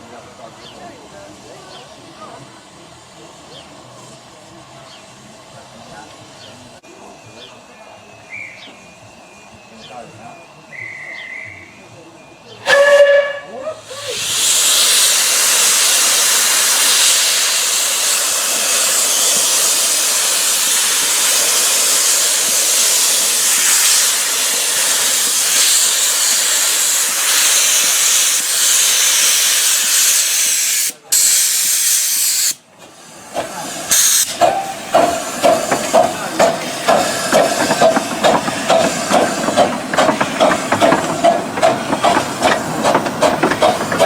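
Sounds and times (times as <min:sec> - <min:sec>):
steam locomotive hissing: 0:00.0 - 0:44.0
clanks and knocks: 0:34.4 - 0:44.0.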